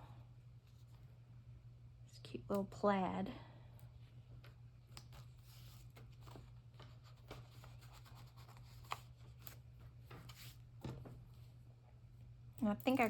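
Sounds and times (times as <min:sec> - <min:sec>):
low steady hum: 0:00.0 - 0:13.0
paper rustling: 0:05.0 - 0:10.6.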